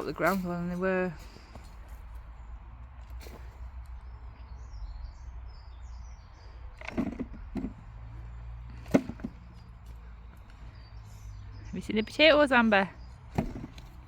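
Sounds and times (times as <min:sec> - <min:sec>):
small birds chirping: 0:00.0 - 0:14.0
knocks and rustling: 0:06.8 - 0:08.1, 0:08.7 - 0:09.7, 0:13.3 - 0:14.0.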